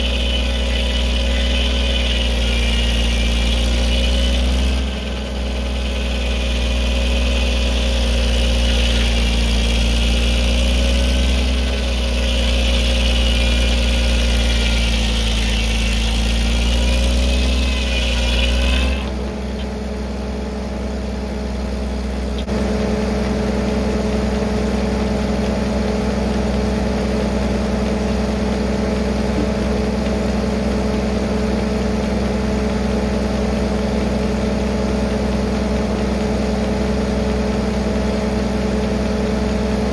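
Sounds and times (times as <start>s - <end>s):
high wavering whine: 0.0s - 19.6s
tractor engine running: 0.0s - 39.9s.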